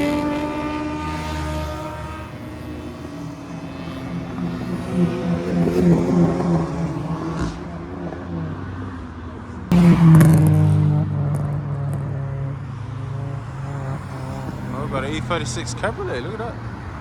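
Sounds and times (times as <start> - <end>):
car engine throbbing: 0.0 - 17.0
car engine under throttle: 0.0 - 17.0.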